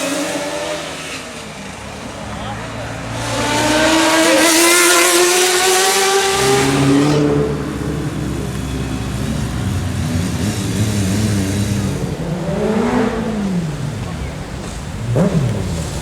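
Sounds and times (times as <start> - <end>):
motorcycle engine revving: 2.7 - 16.0.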